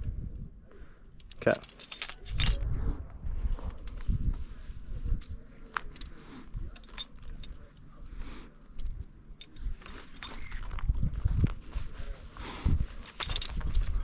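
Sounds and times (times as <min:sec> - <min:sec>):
rumbling wind: 0:00.0 - 0:14.0
carabiners clinking: 0:01.1 - 0:02.7, 0:05.0 - 0:08.0, 0:08.7 - 0:14.0
microphone handling noise: 0:10.4 - 0:14.0.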